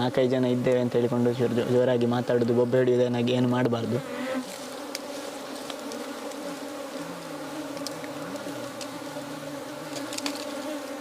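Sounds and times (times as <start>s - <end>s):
honeybees buzzing: 0.0s - 11.0s
faint ticks: 4.9s - 6.5s, 7.7s - 9.0s.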